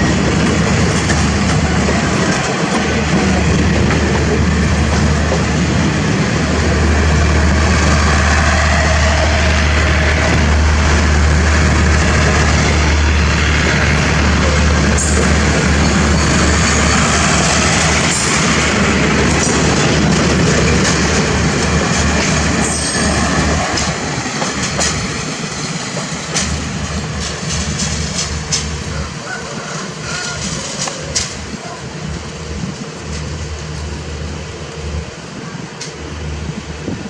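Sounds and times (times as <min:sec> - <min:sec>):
diesel train rumble: 0:00.0 - 0:37.0
rail noise: 0:00.0 - 0:37.0
deep engine hum: 0:02.9 - 0:20.8.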